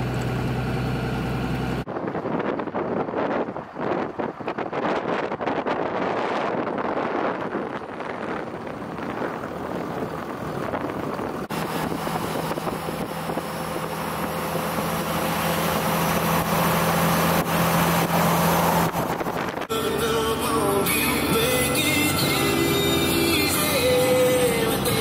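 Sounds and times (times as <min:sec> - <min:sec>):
engine rumbling: 0:00.0 - 0:25.0.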